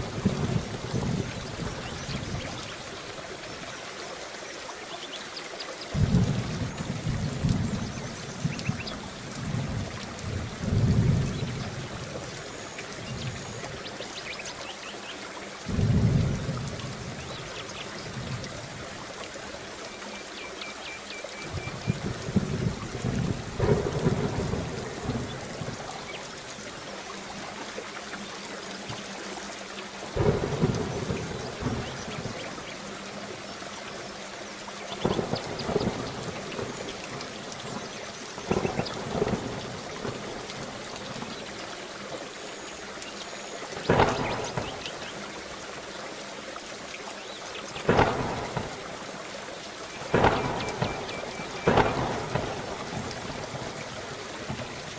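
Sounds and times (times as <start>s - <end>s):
thunder rumbling: 0.0s - 2.9s, 5.9s - 13.4s, 15.7s - 18.8s, 21.5s - 26.4s, 30.1s - 32.7s, 35.0s - 41.3s, 43.8s - 45.2s, 47.8s - 49.1s, 50.0s - 54.9s
heavy rain: 0.0s - 54.9s.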